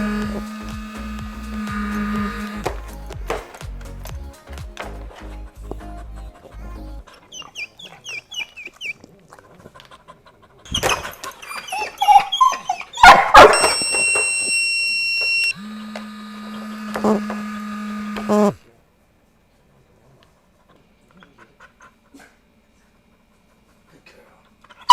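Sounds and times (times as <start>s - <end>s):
low steady buzz: 0.0s - 3.3s, 15.4s - 19.9s
dog whining: 7.1s - 9.0s, 10.7s - 15.5s
dog barking: 10.8s - 13.7s
high electronic beep: 13.4s - 15.5s.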